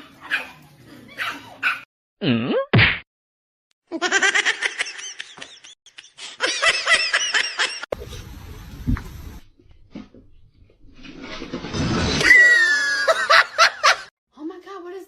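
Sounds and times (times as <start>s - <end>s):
high-pitched laughter: 3.9s - 7.9s.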